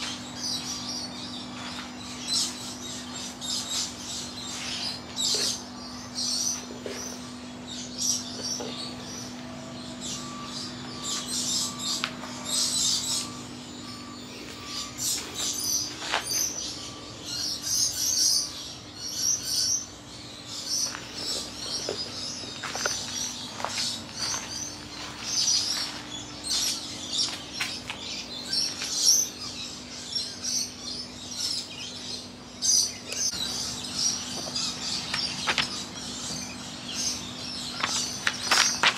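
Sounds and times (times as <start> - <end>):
air conditioner hum: 0.0 - 38.9
birds chirping: 0.0 - 38.9.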